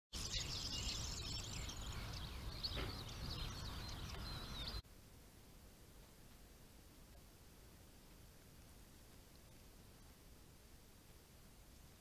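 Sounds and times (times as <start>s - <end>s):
small birds chirping: 0.2s - 4.8s
faint steady hiss: 3.6s - 12.0s.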